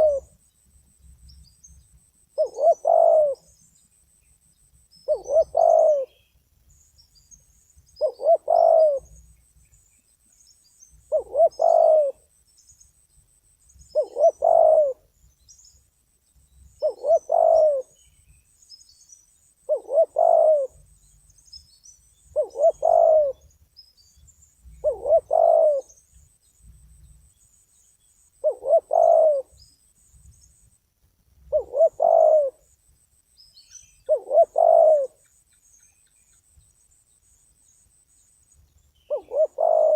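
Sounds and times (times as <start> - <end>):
dove cooing: 0.0 - 0.4, 2.4 - 3.5, 5.1 - 6.3, 8.0 - 9.2, 11.0 - 12.3, 13.9 - 15.1, 16.8 - 18.0, 19.7 - 20.8, 22.3 - 23.5, 24.8 - 26.0, 28.4 - 29.6, 31.5 - 32.7, 34.1 - 35.3, 39.1 - 39.9
small birds chirping: 0.0 - 39.9.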